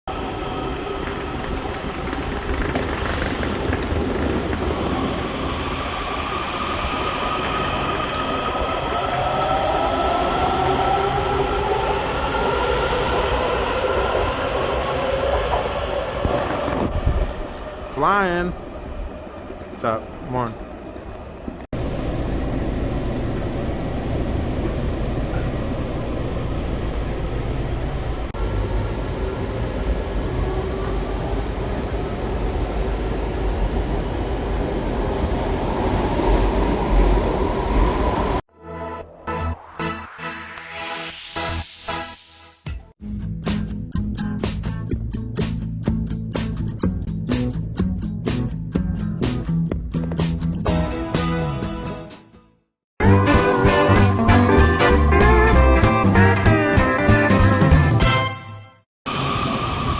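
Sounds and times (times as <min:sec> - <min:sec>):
train wheels rumbling on track: 0:00.1 - 0:38.4
train whine rising in pitch: 0:05.4 - 0:16.3, 0:34.3 - 0:42.6, 0:59.1 - 0:59.9.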